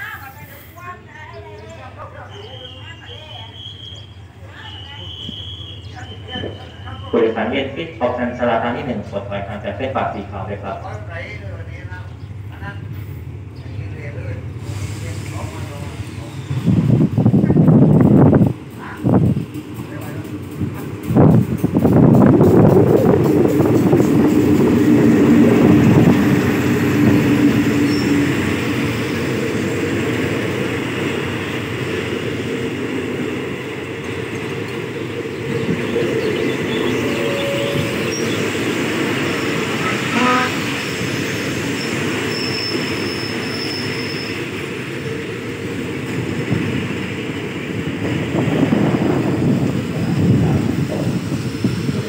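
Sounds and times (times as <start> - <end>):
diesel locomotive engine: 0.0 - 52.0
train coaches rolling by: 0.0 - 52.0
brake or wheel squeals: 41.8 - 44.4.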